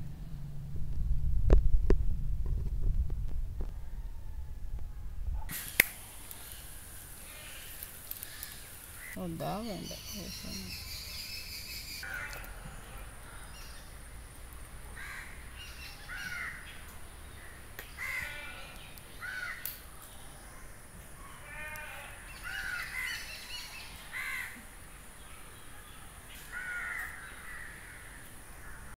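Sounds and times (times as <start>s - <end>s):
faint steady hiss: 0.0s - 28.8s
birds calling harshly: 5.5s - 14.0s, 14.9s - 29.0s.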